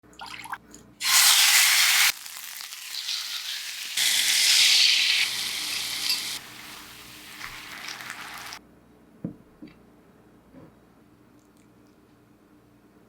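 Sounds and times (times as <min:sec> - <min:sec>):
meat sizzling in a frying pan: 0:01.0 - 0:08.6.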